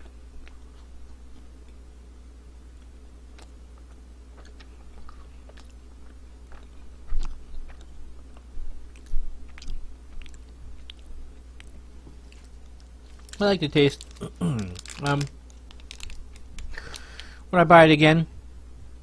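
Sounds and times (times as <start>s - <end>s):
chewing granola bar: 2.8s - 17.4s.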